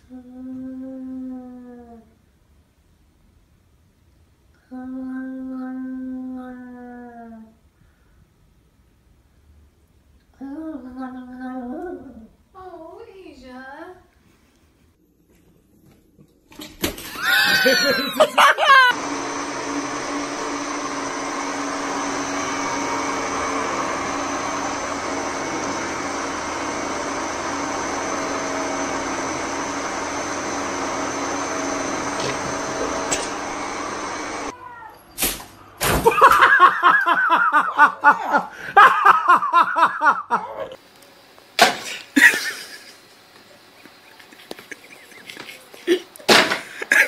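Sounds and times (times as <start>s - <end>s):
loud pulsing cries: 17.2s - 19.0s
blender motor humming: 17.2s - 34.6s.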